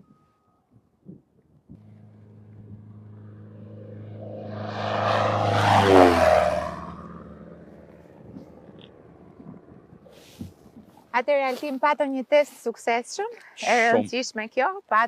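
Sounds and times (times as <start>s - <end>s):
airplane engine drone passing: 1.7s - 10.8s.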